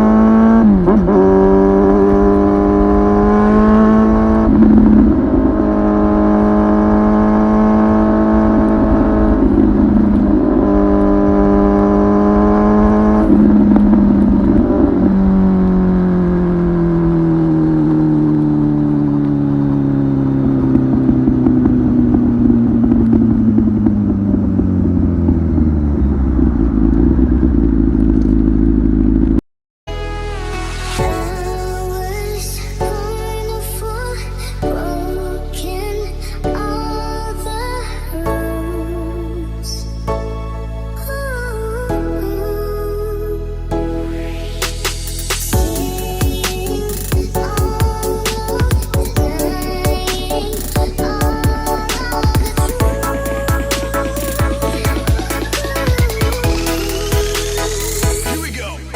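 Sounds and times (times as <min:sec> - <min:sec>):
motorcycle engine running: 0:00.0 - 0:29.4, 0:44.8 - 0:58.9.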